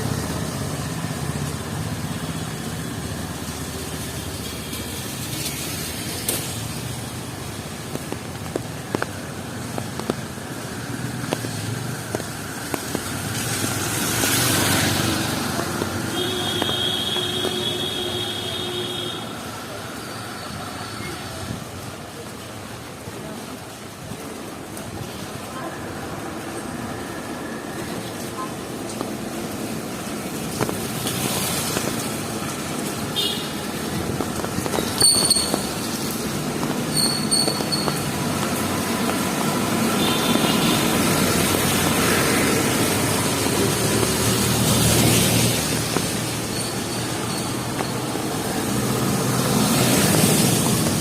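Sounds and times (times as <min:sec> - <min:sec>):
tyres hissing on wet road: 0:00.0 - 0:51.0
water dripping ticks: 0:05.3 - 0:17.8, 0:28.0 - 0:51.0.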